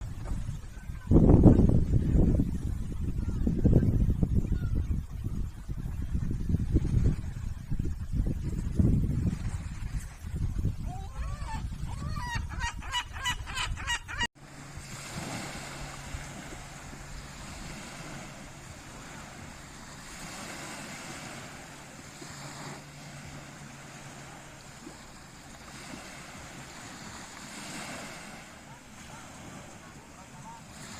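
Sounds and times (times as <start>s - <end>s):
surf: 0.0s - 30.9s
wind buffeting microphone: 0.0s - 30.9s
gull laughing calls: 10.8s - 14.3s.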